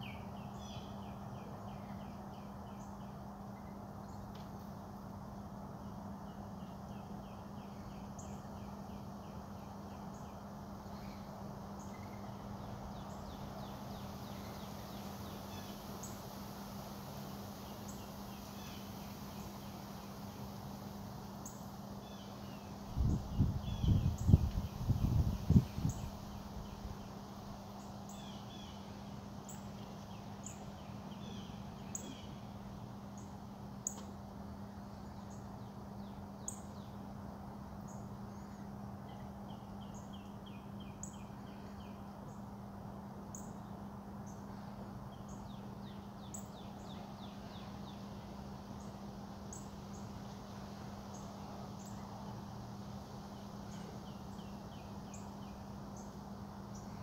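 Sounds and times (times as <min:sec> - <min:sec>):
songbirds chirping and trilling: 0:00.0 - 0:57.0
steady low hum: 0:00.0 - 0:57.0.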